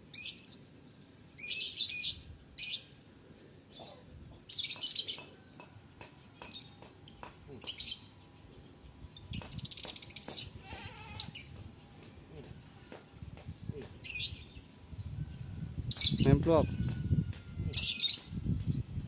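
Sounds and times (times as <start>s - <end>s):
bird chirping shrilly: 9.7s - 11.6s.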